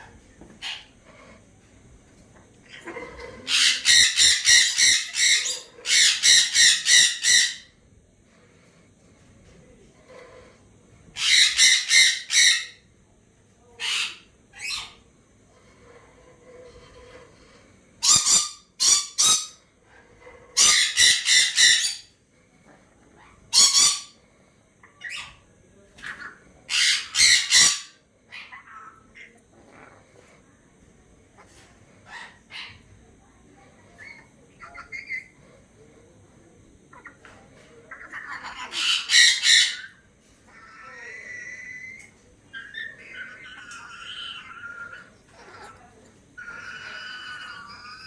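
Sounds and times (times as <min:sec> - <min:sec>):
parrot squawking: 0:02.7 - 0:07.7, 0:11.2 - 0:12.8, 0:13.8 - 0:15.0, 0:18.0 - 0:19.6, 0:20.6 - 0:22.1, 0:23.5 - 0:24.2, 0:26.2 - 0:29.4, 0:33.9 - 0:35.3, 0:37.9 - 0:45.8, 0:46.4 - 0:48.0.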